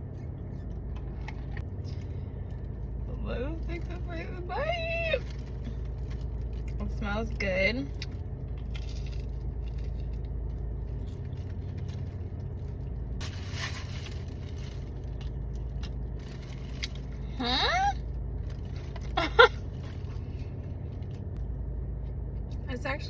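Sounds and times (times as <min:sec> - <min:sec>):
low steady hum: 0:00.0 - 0:23.0
crinkly rustle: 0:10.9 - 0:15.4, 0:16.1 - 0:17.2.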